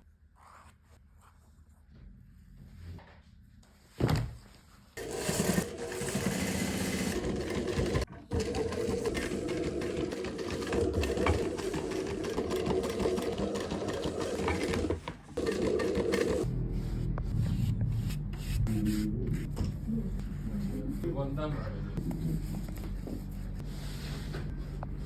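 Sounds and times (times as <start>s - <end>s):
sewing machine stitching: 5.0s - 16.5s.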